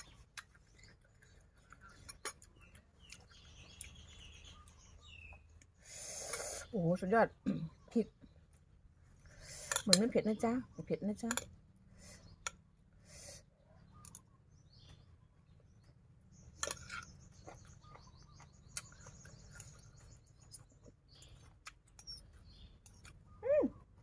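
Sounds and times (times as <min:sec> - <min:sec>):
chewing clicks: 0:00.0 - 0:04.8, 0:16.4 - 0:23.3
birds twittering faintly: 0:00.0 - 0:24.0.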